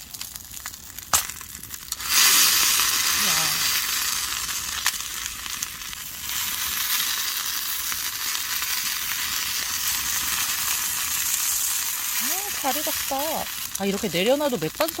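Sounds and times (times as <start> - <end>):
small pops: 0.0 - 2.5
chicken sizzling on grill: 0.0 - 15.0.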